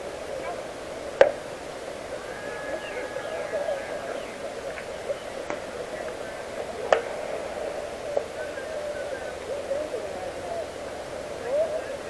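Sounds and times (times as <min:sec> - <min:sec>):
distant players calling out: 0:00.0 - 0:12.0
faint clicks: 0:02.0 - 0:09.7
sharp bat crack: 0:04.6 - 0:09.0.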